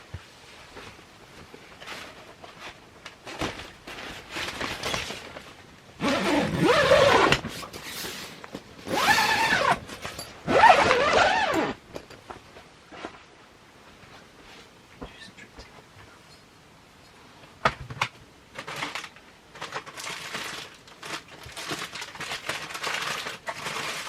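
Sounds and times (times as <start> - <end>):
tent zipper rasping: 6.0 - 8.2, 8.8 - 11.8.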